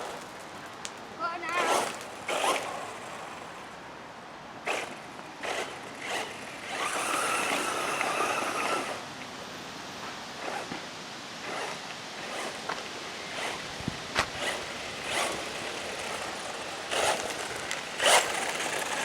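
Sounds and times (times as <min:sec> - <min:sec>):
electric rc car motor whine: 0:01.4 - 0:03.8, 0:04.6 - 0:09.1, 0:10.4 - 0:10.8, 0:11.4 - 0:19.0.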